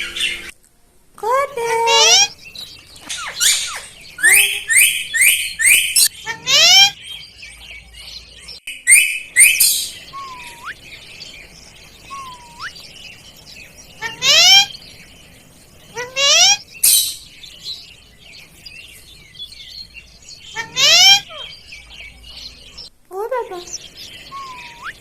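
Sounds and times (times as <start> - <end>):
parrot screeching and chirping: 0.0 - 0.5, 1.8 - 2.4, 3.0 - 7.2, 8.8 - 10.9, 12.0 - 12.8, 14.0 - 14.8, 15.9 - 17.4, 20.4 - 21.9, 23.7 - 25.0
parrot whistles: 3.2 - 6.9.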